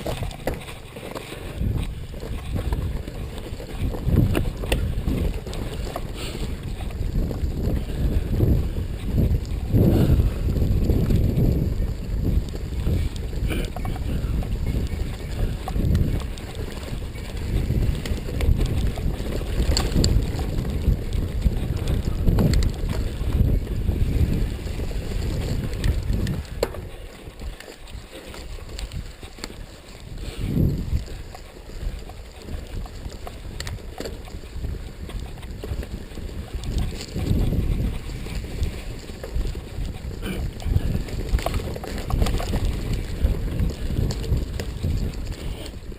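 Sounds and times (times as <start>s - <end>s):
bike rattles and knocks: 0.0s - 45.9s
wind rumbling on microphone: 0.0s - 45.9s.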